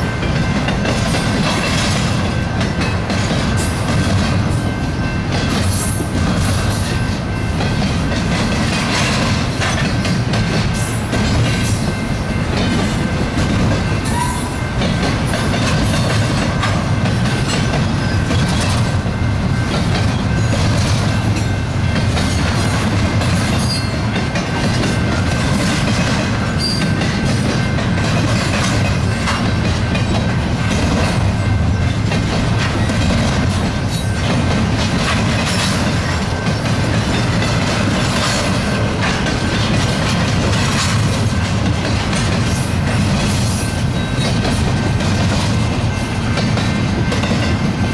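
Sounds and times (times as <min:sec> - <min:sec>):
freight train wheels rumbling: 0:00.0 - 0:47.9
train cars clicking and clacking: 0:00.0 - 0:47.9.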